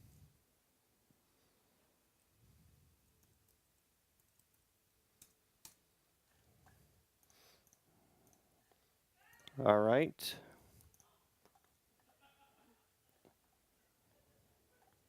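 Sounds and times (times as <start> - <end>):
faint clicks: 3.1 - 4.6, 5.2 - 9.6.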